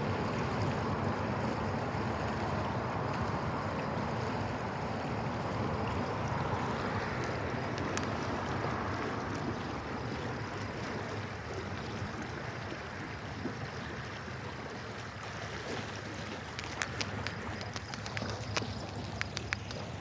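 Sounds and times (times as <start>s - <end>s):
sharp clicks: 16.6s - 19.8s.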